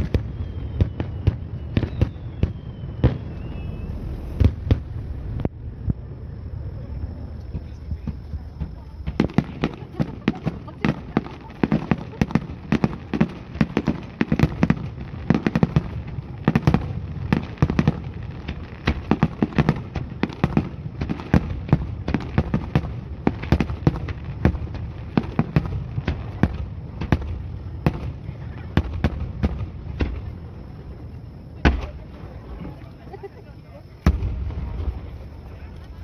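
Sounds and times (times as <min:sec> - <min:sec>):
fireworks bursting and crackling: 0:00.0 - 0:36.0
low rumble: 0:03.3 - 0:08.6.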